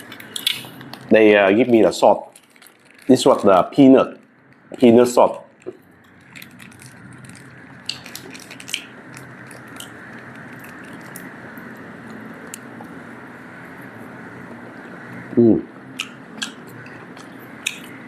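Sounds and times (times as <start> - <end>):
background hum: 0.0 - 18.0
crisp clicks: 2.3 - 13.0, 16.0 - 18.0
person chewing food: 5.6 - 13.0, 16.0 - 18.0.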